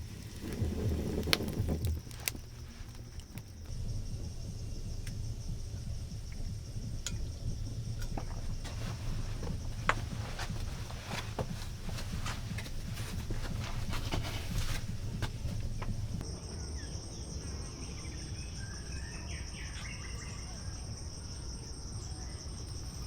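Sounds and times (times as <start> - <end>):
clicks and crackles: 0.0 - 3.7
low rumble: 0.0 - 16.3
crickets trilling: 0.0 - 23.0
faint chirps: 0.0 - 23.0.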